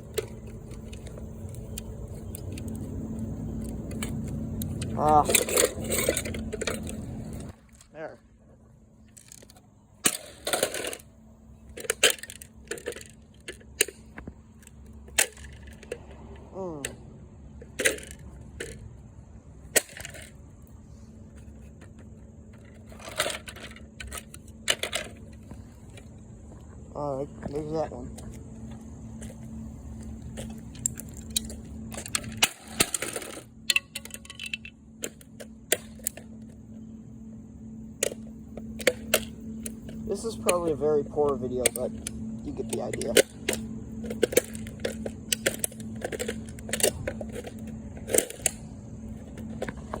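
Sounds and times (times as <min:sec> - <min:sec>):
plastic parts clicking and knocking: 0:00.0 - 0:02.9, 0:03.6 - 0:07.9, 0:09.1 - 0:11.1, 0:11.7 - 0:16.1, 0:17.6 - 0:18.9, 0:21.4 - 0:26.1, 0:30.3 - 0:36.6, 0:38.0 - 0:50.0
plastic parts rattling: 0:00.0 - 0:07.9, 0:09.1 - 0:11.1, 0:11.7 - 0:16.1, 0:17.6 - 0:18.9, 0:21.4 - 0:26.1, 0:30.3 - 0:36.3, 0:38.0 - 0:50.0.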